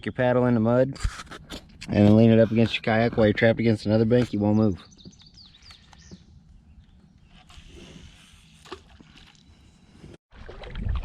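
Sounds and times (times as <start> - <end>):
bird chirping: 4.4 - 7.7.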